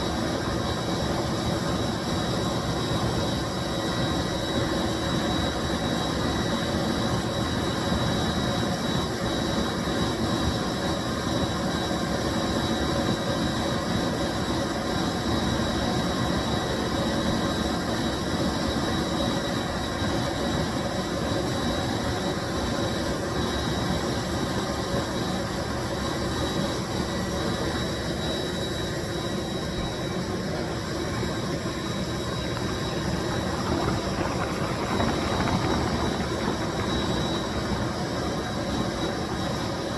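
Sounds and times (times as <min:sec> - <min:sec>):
cleaning machine running: 0:32.9 - 0:38.6.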